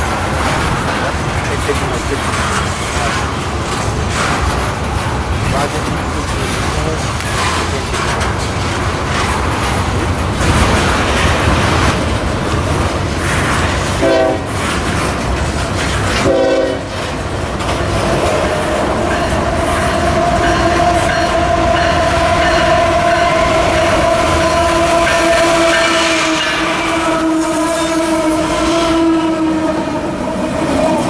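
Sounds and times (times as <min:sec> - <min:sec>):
freight train wheels clattering: 0:00.0 - 0:31.0
locomotive horn blasts: 0:14.0 - 0:14.5, 0:16.2 - 0:17.0, 0:20.5 - 0:30.2.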